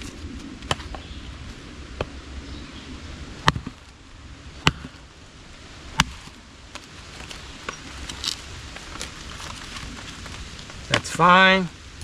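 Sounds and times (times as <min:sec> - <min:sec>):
hatchet chopping wood: 0:03.4 - 0:03.8, 0:04.6 - 0:05.0, 0:05.9 - 0:06.3.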